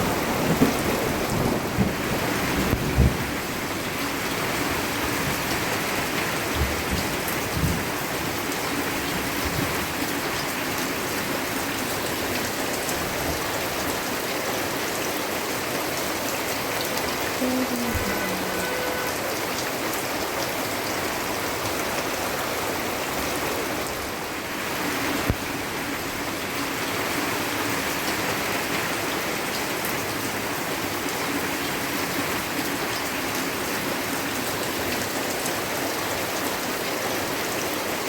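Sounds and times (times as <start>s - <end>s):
rain pattering: 0.0s - 38.0s.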